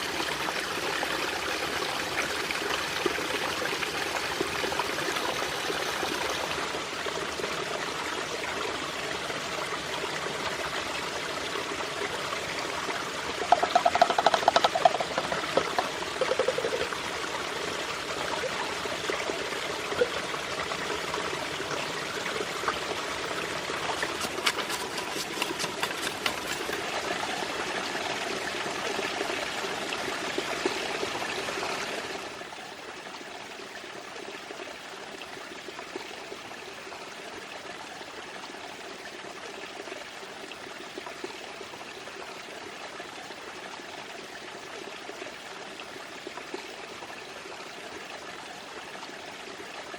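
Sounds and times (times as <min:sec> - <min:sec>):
water running: 0:13.4 - 0:17.3, 0:23.6 - 0:27.1.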